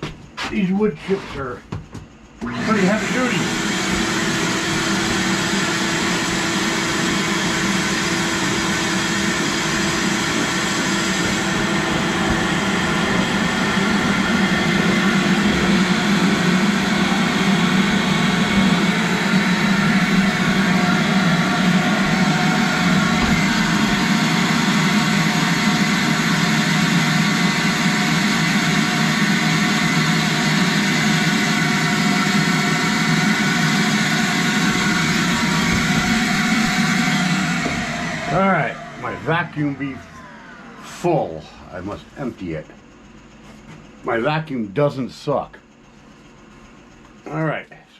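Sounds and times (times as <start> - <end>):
vacuum cleaner running: 2.4 - 42.7.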